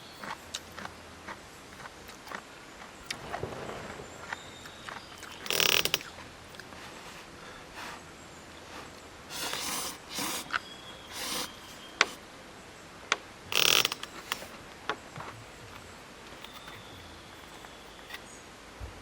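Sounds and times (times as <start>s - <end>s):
objects rustling and scraping: 0.0s - 12.2s, 13.6s - 18.4s
sharp clicks: 3.1s - 6.7s, 13.1s - 15.0s.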